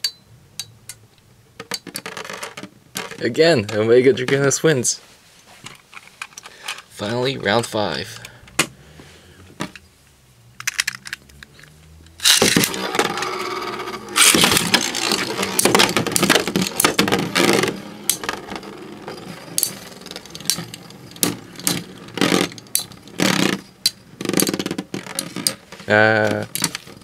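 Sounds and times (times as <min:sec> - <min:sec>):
spinning tops clashing: 0:12.2 - 0:24.7.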